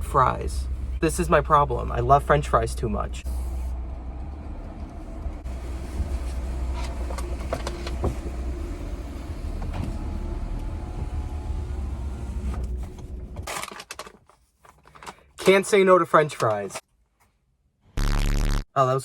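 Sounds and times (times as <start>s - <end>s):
car engine rumble from cabin: 0.0s - 13.5s.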